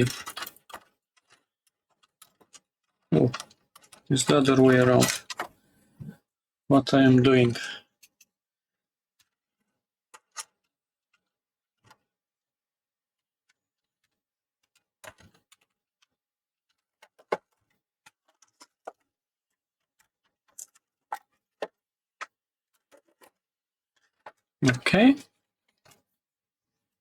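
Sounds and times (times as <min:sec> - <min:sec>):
clicks and taps of plastic parts: 0:00.0 - 0:06.2, 0:10.1 - 0:12.0, 0:13.4 - 0:26.0.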